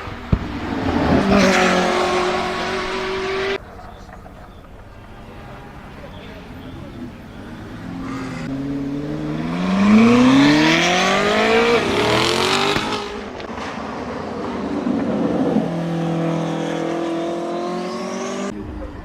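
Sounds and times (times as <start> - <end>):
car engine accelerating hard: 0.0 - 3.6, 5.1 - 18.6.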